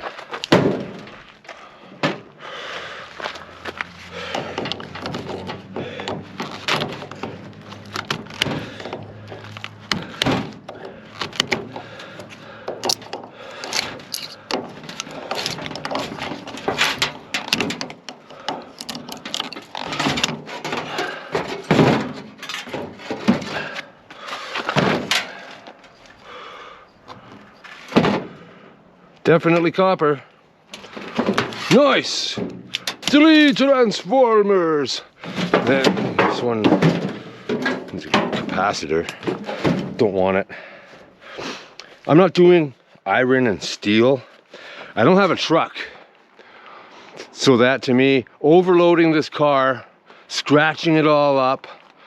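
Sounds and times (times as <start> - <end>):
hand tool knocking and scraping metal: 3.2 - 25.9, 35.2 - 40.1.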